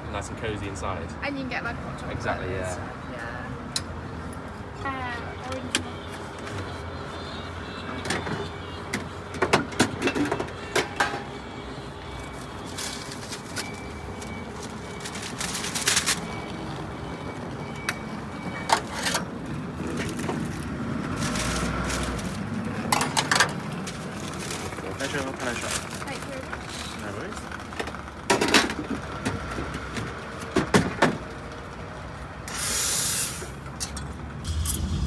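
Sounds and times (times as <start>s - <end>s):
coffee machine hiss: 32.5s - 33.6s.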